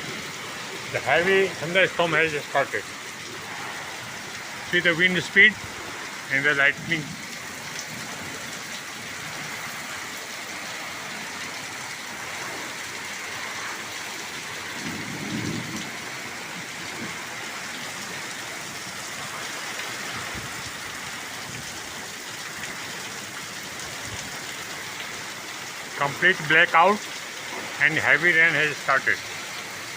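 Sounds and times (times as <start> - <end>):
heavy rain falling: 0.0 - 29.9
low thunder rumble: 14.8 - 16.1.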